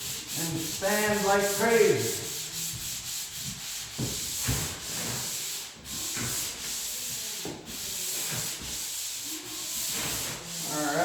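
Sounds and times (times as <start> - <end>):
hand sanding drywall: 0.0 - 11.0.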